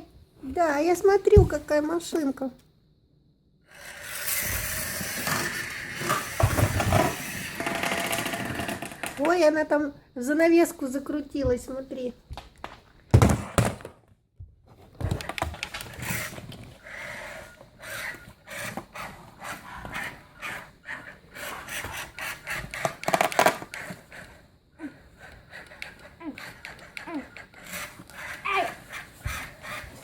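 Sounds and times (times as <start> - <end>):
toy truck clicking and scraping: 3.7 - 9.4, 21.4 - 24.4, 25.3 - 30.0.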